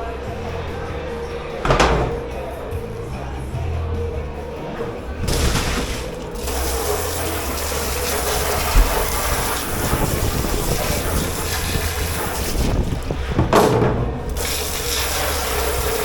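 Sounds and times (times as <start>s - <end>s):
short low knock: 1.6s - 2.4s
water running into a sink: 5.2s - 16.0s.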